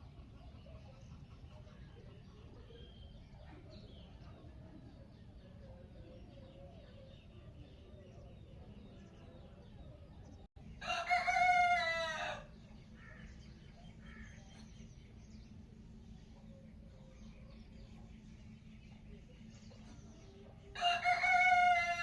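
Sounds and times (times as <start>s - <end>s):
faint birdsong: 0.0s - 22.0s
rooster crowing: 10.8s - 12.5s, 20.8s - 22.0s.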